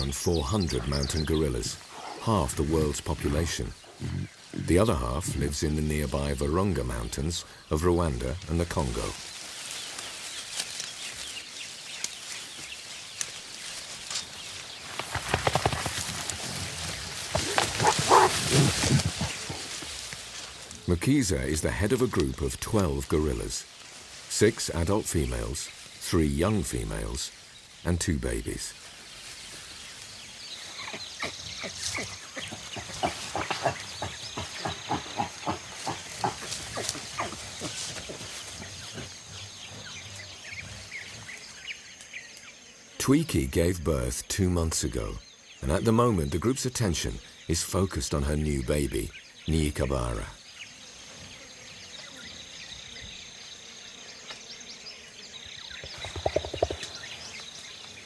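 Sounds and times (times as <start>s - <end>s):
birds chirping: 0.0s - 58.0s
insects droning: 0.0s - 58.0s
high insect whine: 28.4s - 43.5s, 49.0s - 58.0s.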